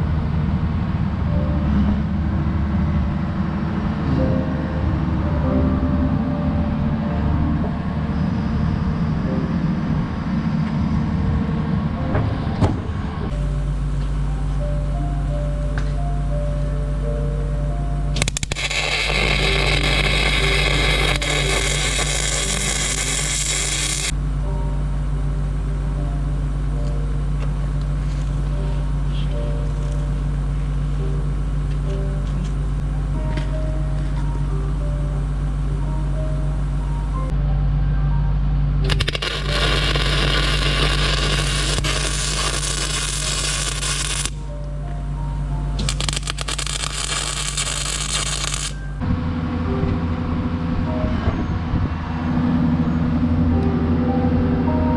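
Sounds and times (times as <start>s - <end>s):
engine rumbling: 0.0s - 54.9s
steady hum with held tones: 13.2s - 54.9s
sharp clicks: 18.2s - 19.5s.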